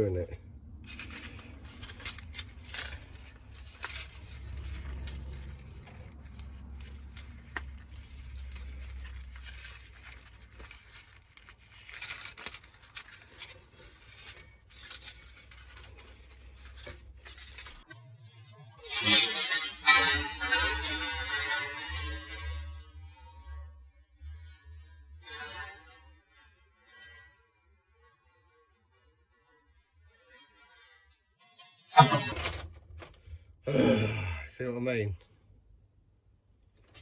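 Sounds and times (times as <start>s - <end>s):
metal and plastic parts rattling: 0.8s - 18.0s, 18.8s - 22.7s, 31.8s - 33.2s, 36.8s - 37.0s
harmonica music: 18.4s - 22.5s.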